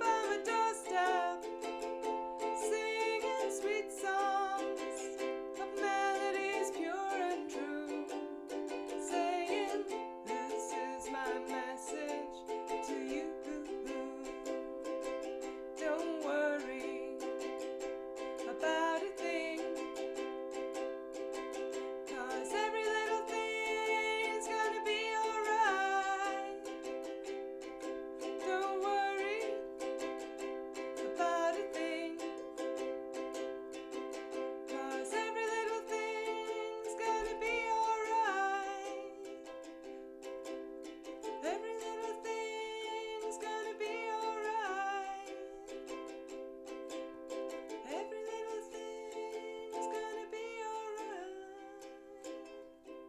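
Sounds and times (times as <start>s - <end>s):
person singing: 0.0s - 53.0s
ukulele strumming: 0.0s - 53.0s.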